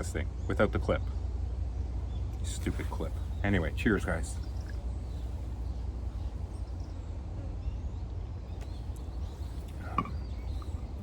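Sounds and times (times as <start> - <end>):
chirp-like call: 8.6 - 11.0.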